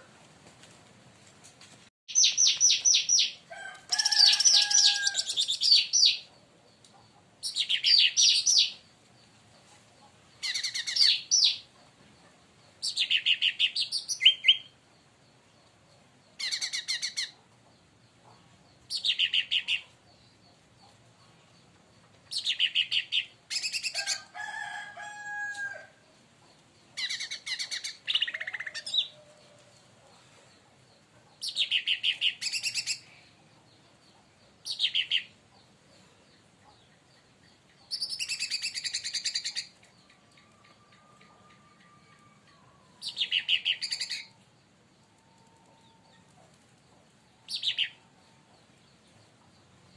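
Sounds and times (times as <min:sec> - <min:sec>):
bird high rapid chirping: 0:02.1 - 0:03.4, 0:04.0 - 0:06.3, 0:10.4 - 0:11.6, 0:37.9 - 0:39.8.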